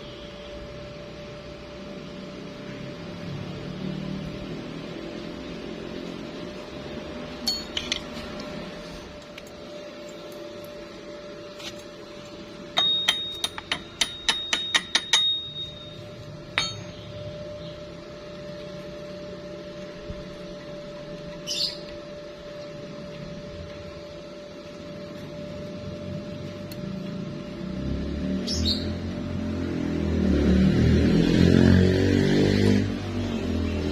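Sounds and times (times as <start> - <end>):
steady hum: 0.0 - 31.3
sharp metallic strikes: 12.8 - 17.2.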